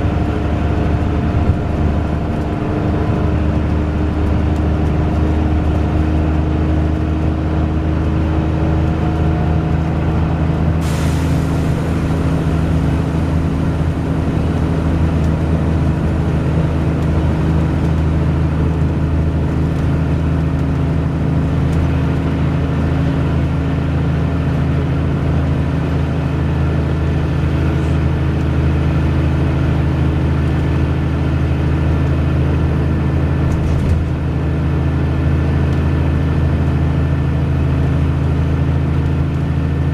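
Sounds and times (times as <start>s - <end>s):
bus engine droning: 0.0s - 39.9s
air hiss: 10.8s - 13.3s.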